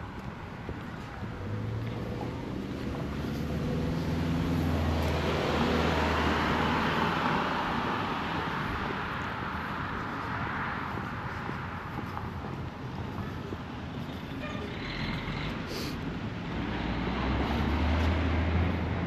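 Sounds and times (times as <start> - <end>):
tyre noise on road: 0.0 - 19.0.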